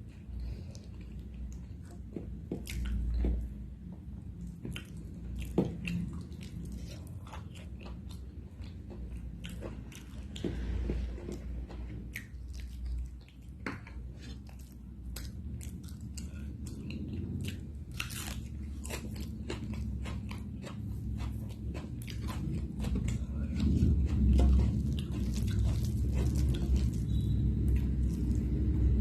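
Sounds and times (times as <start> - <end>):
chewing and crunching food: 0.0 - 29.0
low rumble: 15.1 - 29.0.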